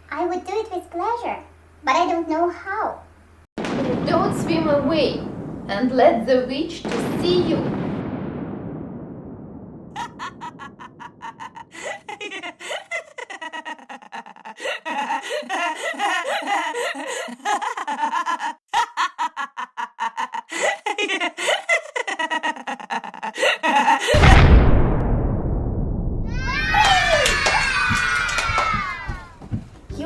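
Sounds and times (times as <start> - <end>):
sudden loud noise burst: 3.6 - 12.1, 24.1 - 29.4
witch cackling laughter: 10.0 - 24.2.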